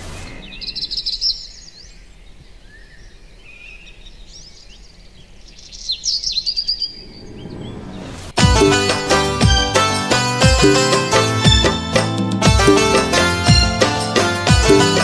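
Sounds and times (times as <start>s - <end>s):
soft bird calls: 0.0s - 8.4s
songbirds chirping trills: 0.1s - 8.4s.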